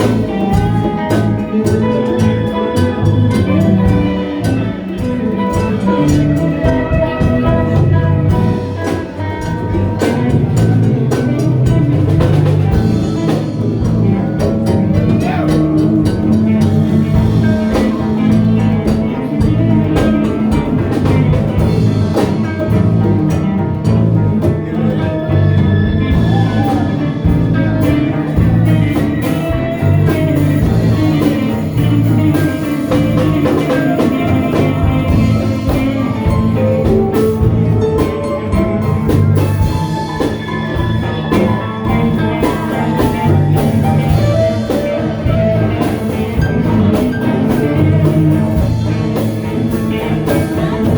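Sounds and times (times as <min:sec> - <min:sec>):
live band playing instrumental: 0:00.0 - 0:50.9.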